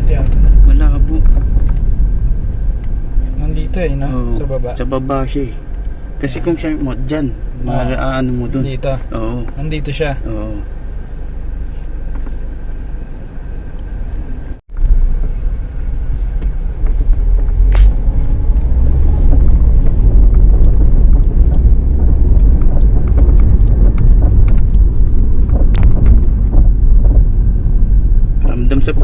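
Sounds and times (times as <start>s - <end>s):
car driving over rough road: 0.0s - 29.0s
suspension knocks: 16.3s - 29.0s.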